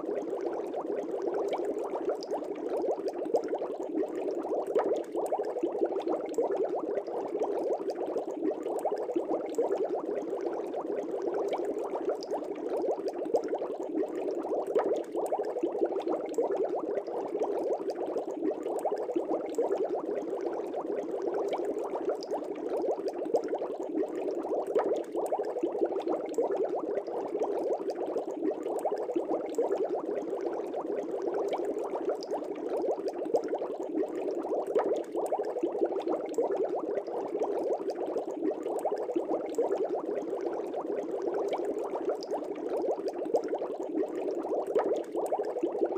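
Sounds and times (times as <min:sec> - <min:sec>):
aquarium air bubbles gurgling: 0:00.0 - 0:45.9.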